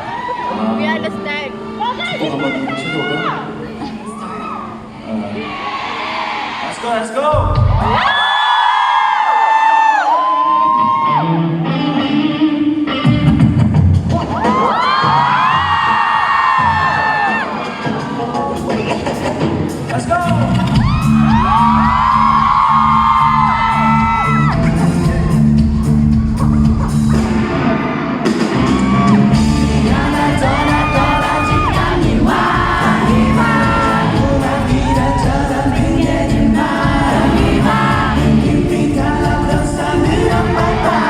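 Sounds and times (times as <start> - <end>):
live pop-rock band: 10.7 - 41.0
male lead vocal singing: 29.4 - 41.0.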